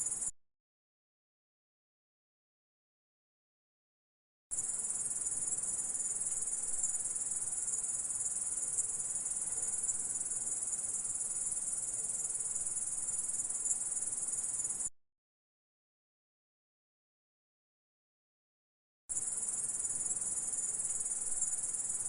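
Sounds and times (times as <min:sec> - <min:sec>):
insect chirring trill: 0:00.0 - 0:00.3, 0:04.5 - 0:14.9, 0:19.1 - 0:22.0.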